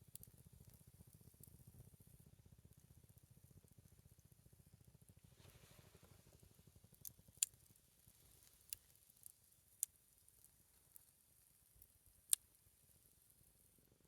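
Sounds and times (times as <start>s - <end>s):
campfire log crackling and popping: 0.1s - 1.5s, 6.0s - 11.1s, 11.8s - 12.5s.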